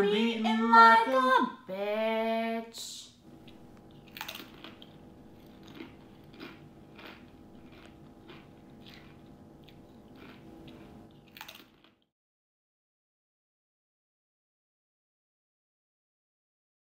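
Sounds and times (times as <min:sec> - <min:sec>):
person chewing crunchy chips: 0:03.3 - 0:12.1.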